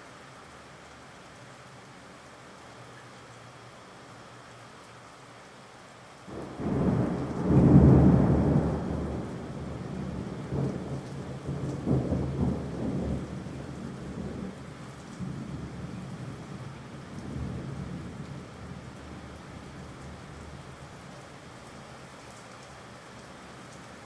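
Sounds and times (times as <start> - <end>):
steady rain: 0.0 - 24.0
thunder rumbling: 6.3 - 20.8.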